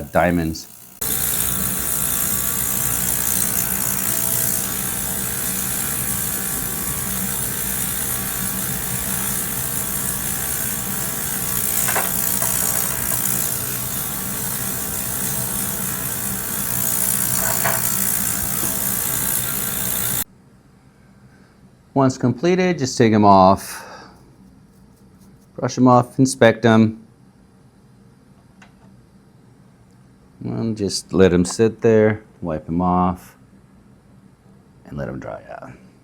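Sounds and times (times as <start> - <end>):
ultrasonic cleaner buzzing and hissing: 0.0 - 20.3.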